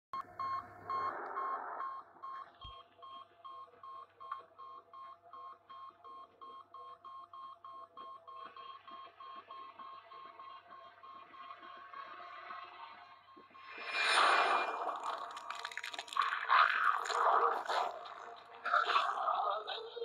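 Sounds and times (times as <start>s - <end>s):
short high electronic beeps: 13.0s - 15.4s.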